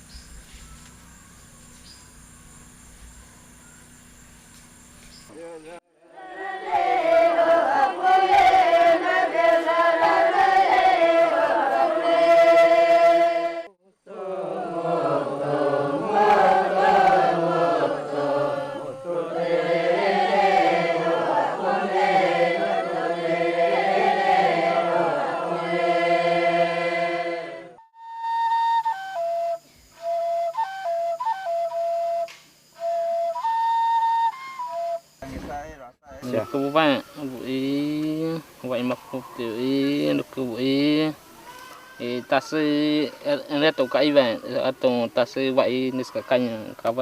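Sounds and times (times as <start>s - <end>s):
group of voices chanting: 6.0s - 27.8s.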